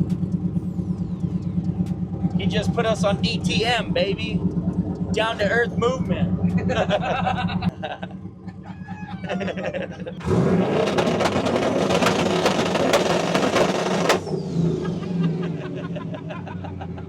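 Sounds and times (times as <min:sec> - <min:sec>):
car engine revving with crackling pops: 0:10.2 - 0:15.6.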